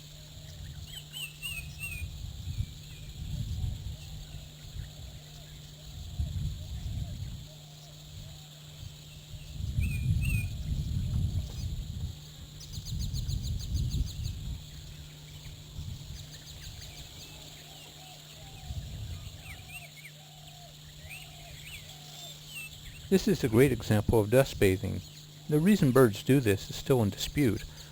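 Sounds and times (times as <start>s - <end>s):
lower repeated bird calls: 0.0s - 10.7s, 12.5s - 27.9s
steady high-pitched hiss: 0.0s - 27.9s
birds chirping: 12.5s - 27.9s.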